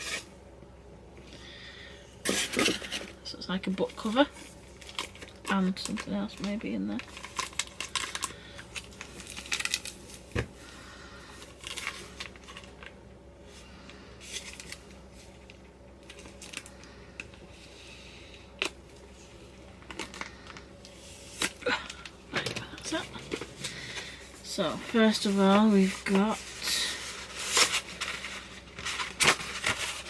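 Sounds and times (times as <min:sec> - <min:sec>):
packaging rustling and crinkling: 0:03.8 - 0:10.6, 0:11.3 - 0:13.0, 0:14.2 - 0:17.4, 0:18.6 - 0:30.0.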